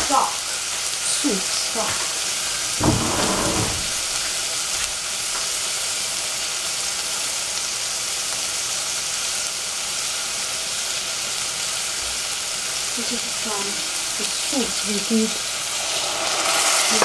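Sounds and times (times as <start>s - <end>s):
mushrooms sizzling in a pan: 0.0s - 2.8s, 4.0s - 17.0s.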